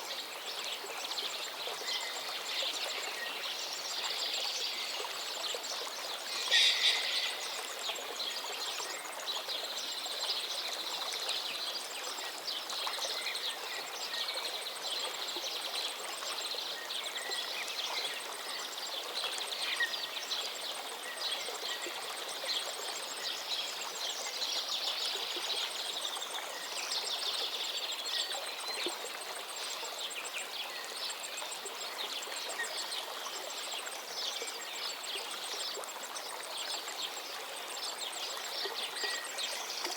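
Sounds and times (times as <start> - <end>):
stream flowing: 0.0 - 39.9
birds chirping and trilling: 6.3 - 7.8.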